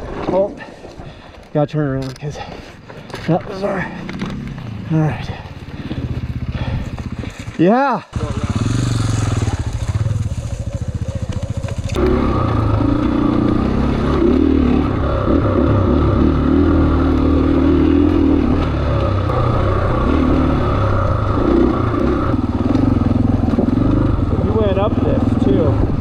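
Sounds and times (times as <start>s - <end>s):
dirt bike engine running: 3.5s - 26.0s.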